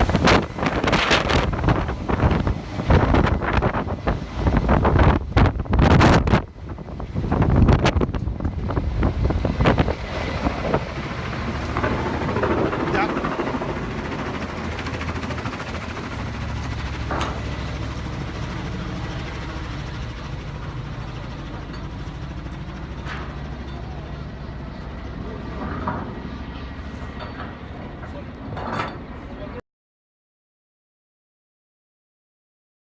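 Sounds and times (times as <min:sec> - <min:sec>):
helicopter rotor and engine: 0:00.0 - 0:29.6
rotor downwash buffeting microphone: 0:00.0 - 0:29.6.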